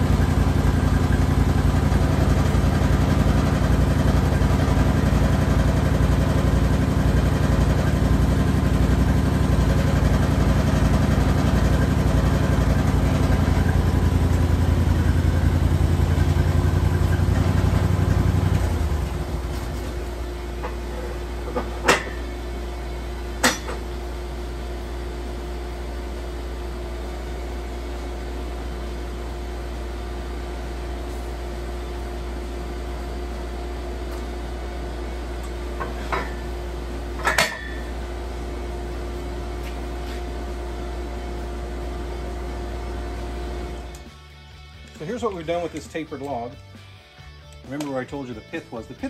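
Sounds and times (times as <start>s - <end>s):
sawmill engine idling: 0.0s - 21.5s.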